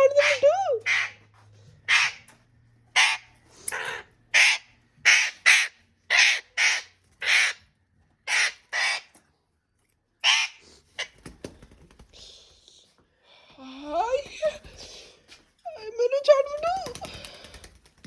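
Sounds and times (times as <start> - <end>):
parrot screeching: 0.0 - 1.2, 1.9 - 2.3, 2.9 - 7.6, 8.2 - 9.1, 10.2 - 10.6.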